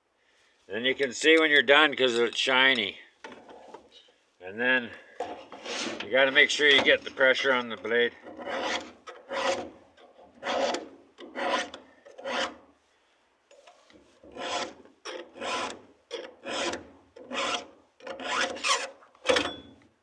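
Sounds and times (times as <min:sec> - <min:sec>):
file rasping on chainsaw chain: 0:08.2 - 0:12.6, 0:14.3 - 0:19.0.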